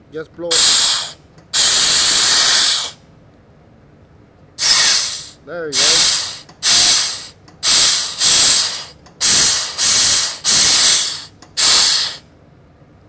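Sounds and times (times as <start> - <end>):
compressed air blow gun hissing: 0.5 - 3.0, 4.6 - 12.2.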